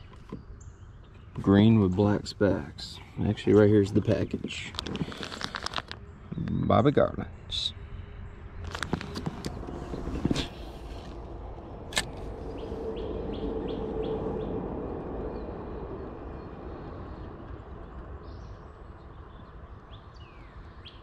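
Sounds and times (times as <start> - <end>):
low outdoor rumble: 0.0 - 21.0
sharp click: 11.9 - 12.2.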